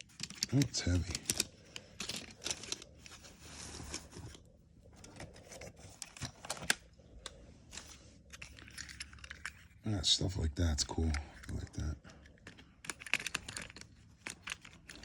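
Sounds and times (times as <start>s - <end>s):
toy cars clicking and clinking: 0.0s - 3.2s, 5.8s - 9.8s, 10.9s - 15.0s
rubbing or scraping: 2.2s - 4.4s.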